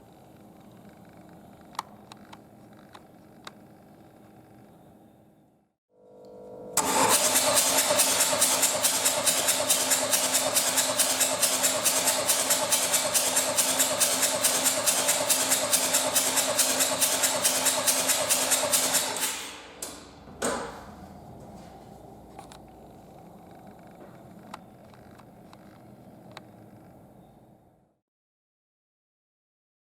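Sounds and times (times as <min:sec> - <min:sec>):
starter motor whine: 0:06.1 - 0:26.4
diesel engine cranking: 0:06.8 - 0:21.4
knocks: 0:19.8 - 0:21.6.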